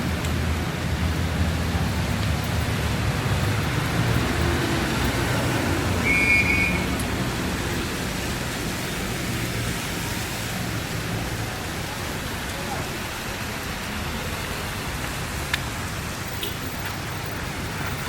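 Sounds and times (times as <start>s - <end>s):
heavy rain pouring: 0.0s - 18.0s
traffic rumble: 0.0s - 18.0s.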